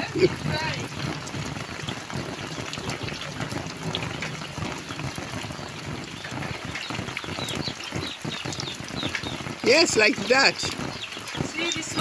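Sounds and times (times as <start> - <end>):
floodwater running and splashing: 0.0 - 12.0
rain: 0.0 - 12.0.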